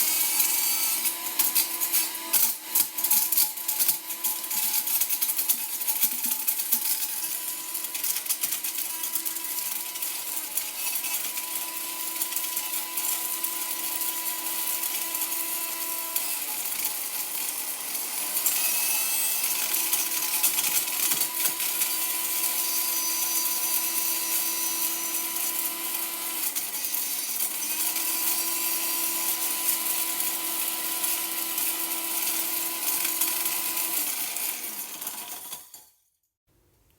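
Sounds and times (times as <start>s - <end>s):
blender motor running: 0.0s - 35.6s
plastic toy rattling in blender jar: 1.0s - 15.5s.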